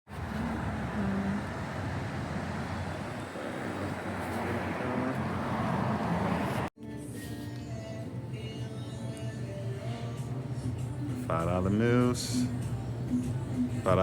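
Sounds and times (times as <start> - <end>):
road vehicle rumble: 0.1 - 6.7.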